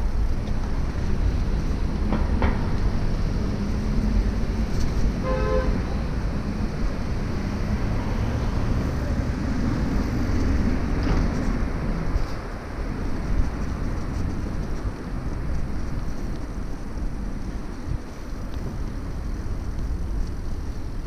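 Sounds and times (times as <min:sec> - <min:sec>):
low rumble of traffic: 0:00.0 - 0:21.0
wind on microphone: 0:00.0 - 0:21.0
vehicle horn toot: 0:05.2 - 0:05.8.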